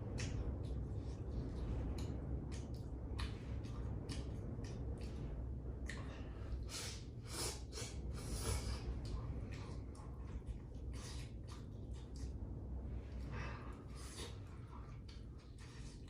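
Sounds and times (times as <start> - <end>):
low wind rumble: 0.0 - 16.0
breathy sniffs: 6.6 - 9.0.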